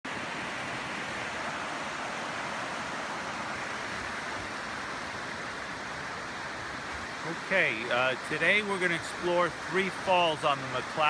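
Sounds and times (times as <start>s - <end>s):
river water rushing: 0.1s - 11.0s.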